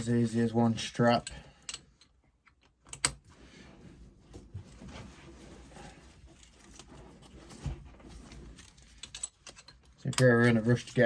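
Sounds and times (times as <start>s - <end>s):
harness straps rustling: 4.1s - 11.0s.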